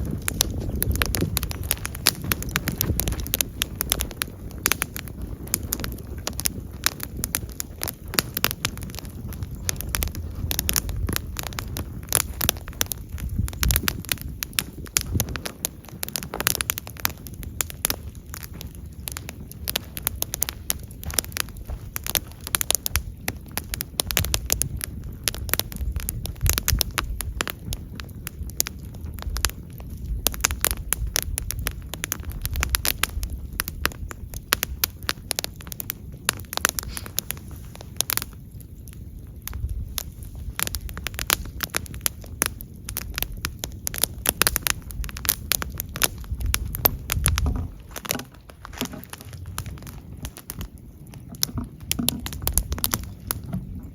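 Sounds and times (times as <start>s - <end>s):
burning wood crackling and popping: 0.0s - 53.9s
low rumble of flames: 0.0s - 53.9s.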